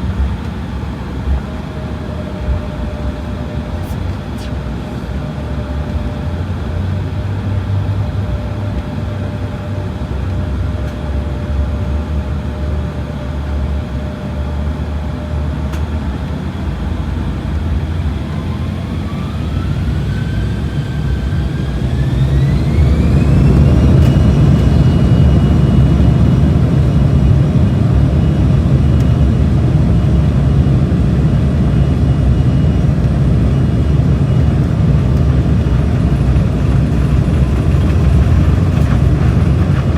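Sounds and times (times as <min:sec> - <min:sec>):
aircraft engines spooling up: 0:00.0 - 0:39.9
engine whine rising: 0:00.0 - 0:39.9
low rumble: 0:20.6 - 0:39.9.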